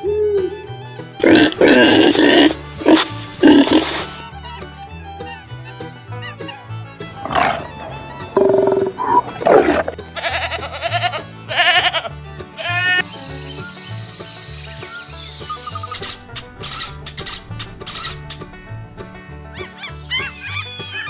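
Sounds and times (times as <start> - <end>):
background music with steady beat: 0.0 - 21.0
animal calls: 7.2 - 10.0, 14.9 - 18.5, 19.6 - 21.0.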